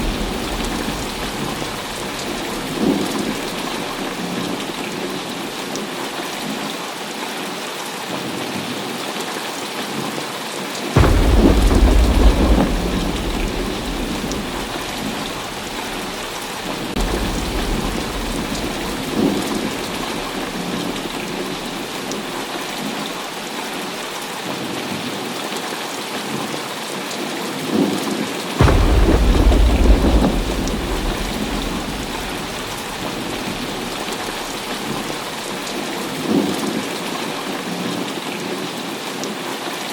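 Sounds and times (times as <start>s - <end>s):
thunderclaps rumbling: 0.0s - 5.5s, 11.0s - 22.6s, 28.6s - 36.5s
heavy rain falling: 0.0s - 39.9s.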